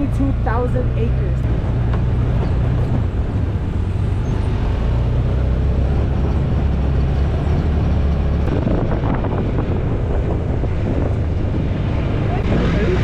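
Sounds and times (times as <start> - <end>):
engine and rolling rumble: 0.0 - 13.0
wind noise: 0.0 - 13.0.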